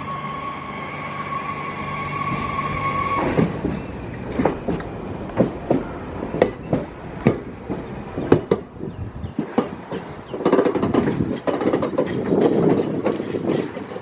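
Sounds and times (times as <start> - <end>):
high wheel squeal: 0.0 - 4.2
train rumble: 0.0 - 14.0
train wheels clacking over joints: 3.2 - 14.0.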